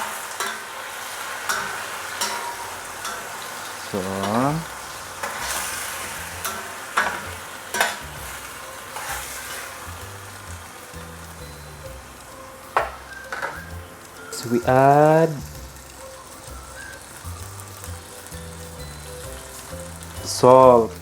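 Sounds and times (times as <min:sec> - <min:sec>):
chicken sizzling in a pan: 0:00.0 - 0:21.0
utensil knocking against pan: 0:12.7 - 0:13.7.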